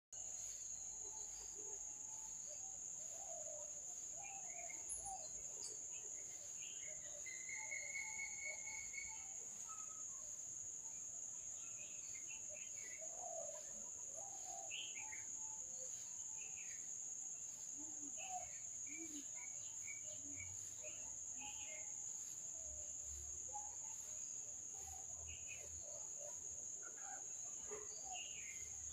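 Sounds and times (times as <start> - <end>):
insects droning: 0.2 - 28.9
bird chirps and calls: 2.5 - 10.3.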